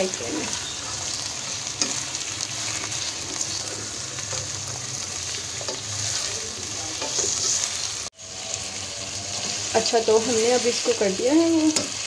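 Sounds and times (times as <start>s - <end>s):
chicken sizzling in hot oil: 0.0s - 12.0s
spatula clicking and scraping: 7.0s - 7.9s.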